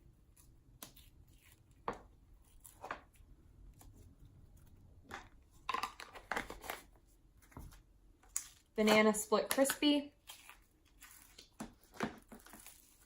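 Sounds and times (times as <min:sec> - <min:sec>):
sticky slime squishes: 0:08.2 - 0:13.0.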